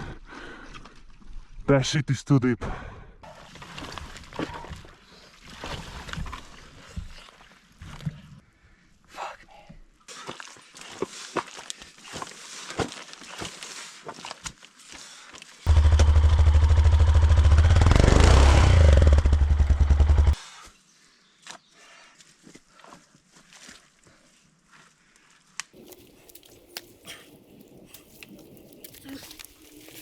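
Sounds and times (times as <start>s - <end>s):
dirt bike engine running: 15.7s - 20.4s.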